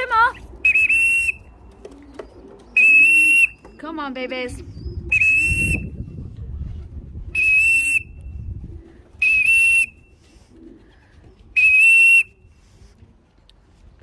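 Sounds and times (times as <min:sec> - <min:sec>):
whistle blasts: 0:00.7 - 0:01.4, 0:02.8 - 0:03.6, 0:05.1 - 0:05.9, 0:07.4 - 0:08.2, 0:09.2 - 0:10.0, 0:11.6 - 0:12.4.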